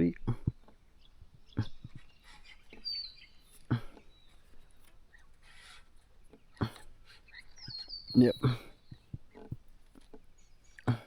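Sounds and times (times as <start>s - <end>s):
bird chirping: 0.0s - 11.0s
rubbing scrapes: 1.6s - 10.1s.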